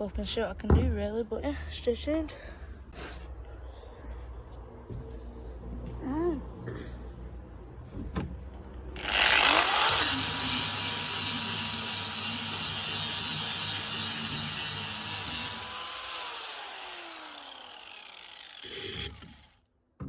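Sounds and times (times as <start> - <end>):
grinding against work: 9.0 - 19.5
power tool motor whine: 9.0 - 19.6.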